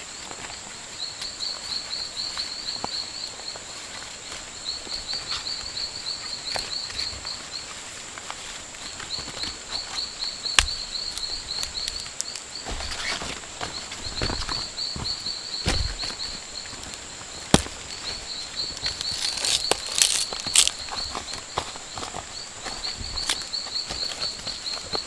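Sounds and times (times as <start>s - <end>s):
sharp crack: 17.5s - 18.0s, 18.8s - 20.8s.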